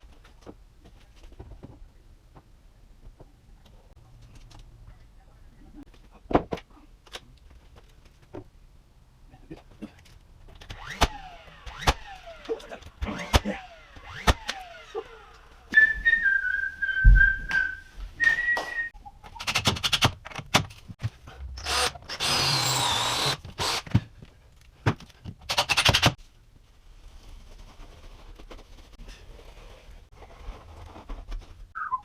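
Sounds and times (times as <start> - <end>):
person whistling: 15.7 - 19.0, 31.8 - 32.0.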